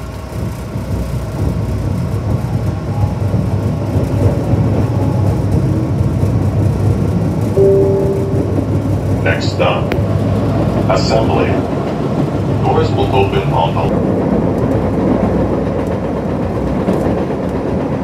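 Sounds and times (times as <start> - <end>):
train rumbling: 0.0 - 18.0
brief steady tone: 7.6 - 9.1.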